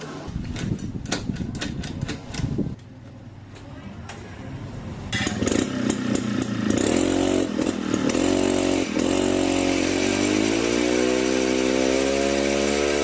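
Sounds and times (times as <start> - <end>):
woodturning machine motor: 5.2 - 13.0.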